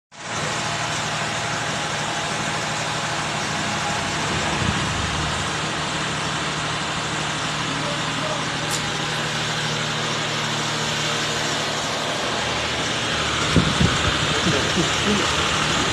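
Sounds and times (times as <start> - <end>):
diesel engine idling: 0.1 - 15.9.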